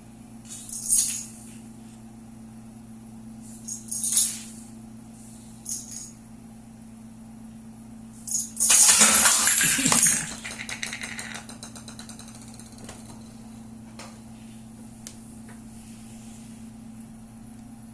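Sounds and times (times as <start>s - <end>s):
steady low hum: 0.0s - 17.9s
dominoes toppling and clicking: 8.6s - 12.6s.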